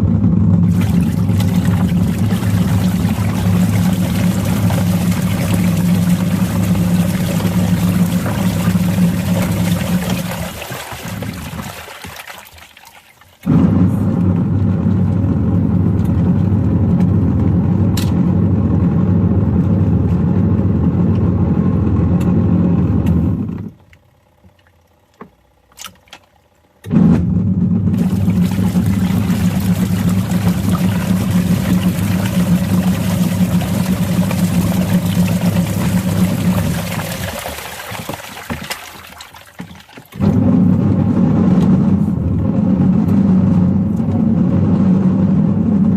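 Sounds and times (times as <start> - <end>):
washing machine churning: 0.0 - 45.9.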